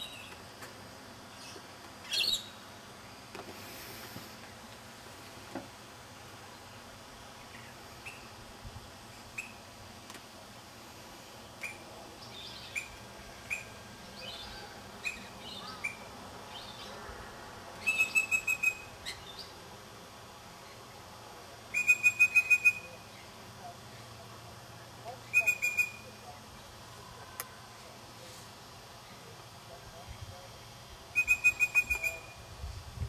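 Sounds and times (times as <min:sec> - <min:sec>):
songbirds chirping: 0:11.3 - 0:17.1.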